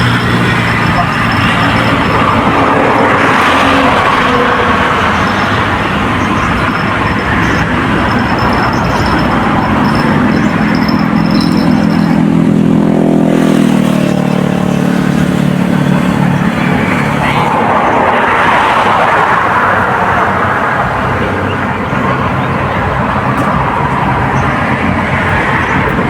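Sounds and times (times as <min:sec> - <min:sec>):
motor engine running: 0:00.0 - 0:18.2
loud rushing as vehicle passes: 0:00.0 - 0:26.0.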